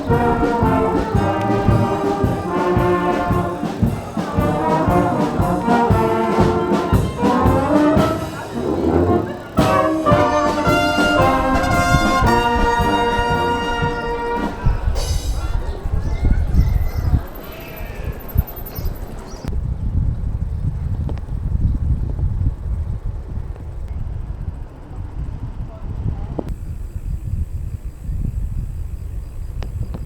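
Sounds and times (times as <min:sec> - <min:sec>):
brass band holding notes: 0:00.0 - 0:15.6
drum beat: 0:00.0 - 0:15.9.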